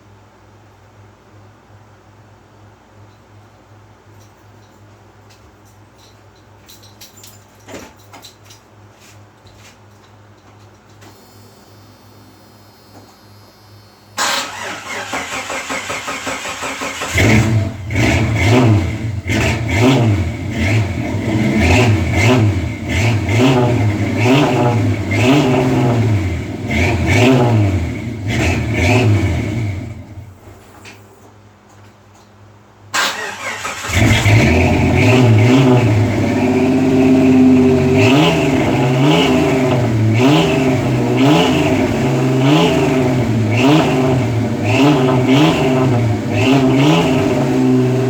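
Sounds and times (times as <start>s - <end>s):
car engine revving: 14.2s - 30.3s, 33.2s - 48.0s
car engine cranking: 14.2s - 30.6s, 32.9s - 48.0s.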